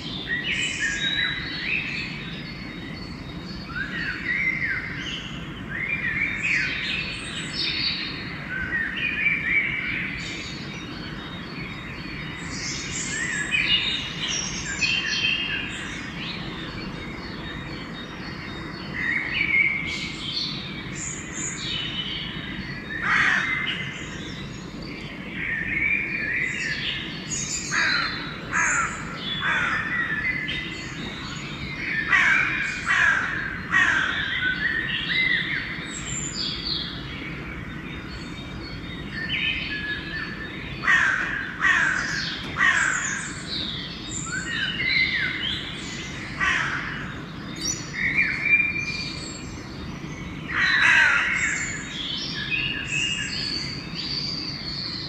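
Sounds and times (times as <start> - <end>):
songbirds singing and chirping: 0.0 - 55.0
crows cawing: 23.0 - 23.7, 27.7 - 29.9, 32.1 - 34.3, 40.8 - 43.4, 46.4 - 47.1, 50.5 - 51.7.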